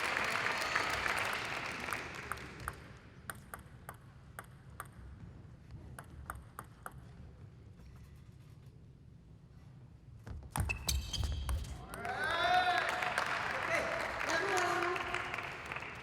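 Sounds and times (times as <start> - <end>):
applause: 0.0 - 3.1, 12.0 - 16.0
table tennis ball clicking: 2.6 - 5.2, 5.9 - 7.3.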